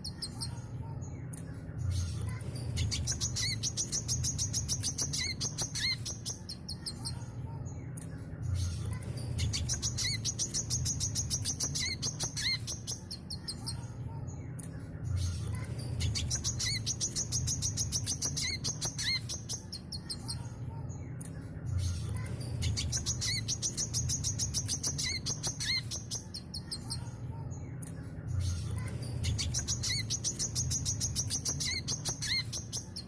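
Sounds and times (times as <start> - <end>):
bird twittering: 2.6 - 7.2, 9.3 - 13.9, 15.9 - 20.4, 22.6 - 27.1, 29.2 - 33.0.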